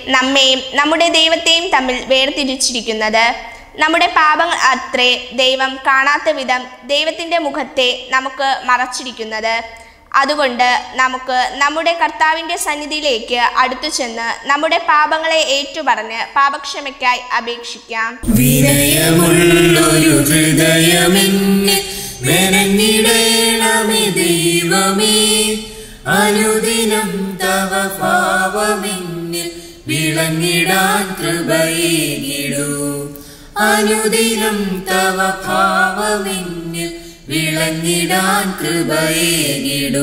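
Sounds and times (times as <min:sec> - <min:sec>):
voices singing a hymn: 0:18.2 - 0:40.0
singers breathing: 0:21.8 - 0:22.3, 0:25.6 - 0:26.1, 0:29.5 - 0:29.9, 0:33.1 - 0:33.6, 0:36.9 - 0:37.3.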